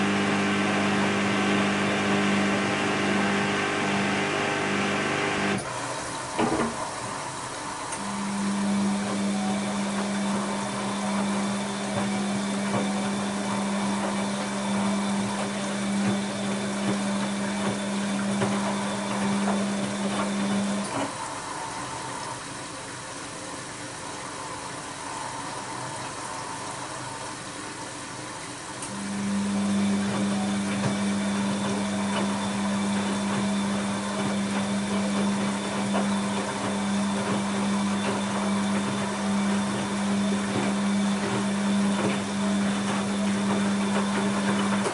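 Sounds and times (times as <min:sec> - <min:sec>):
washing machine pump humming: 0:00.0 - 0:44.9.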